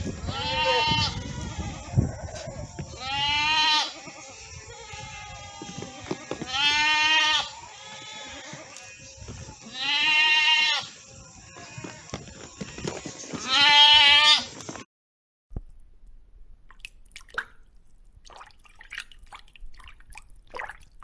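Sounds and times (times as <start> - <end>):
farm animal bleating: 0.0 - 14.8.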